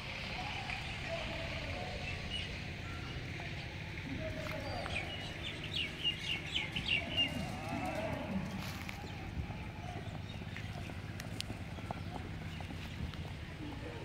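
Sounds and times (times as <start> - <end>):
bird chirping: 0.7 - 13.7.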